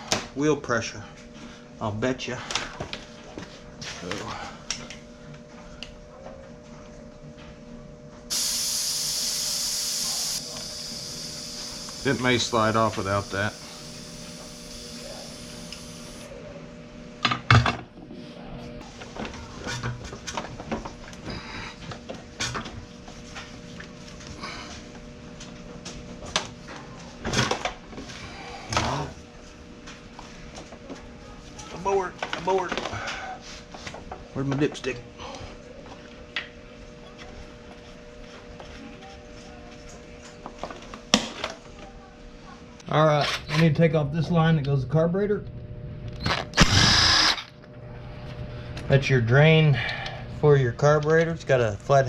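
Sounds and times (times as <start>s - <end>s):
steady background hum: 0.0s - 52.0s
air hissing from tire valve: 8.3s - 16.3s.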